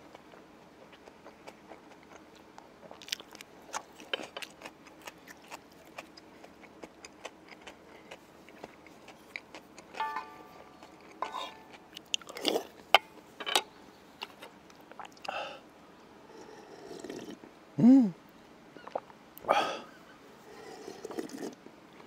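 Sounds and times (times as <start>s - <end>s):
person chewing food: 0.0s - 12.9s, 14.2s - 15.4s.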